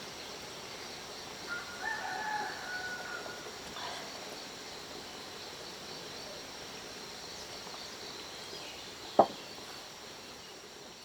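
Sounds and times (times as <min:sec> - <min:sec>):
sharp knock: 0:09.2 - 0:09.4.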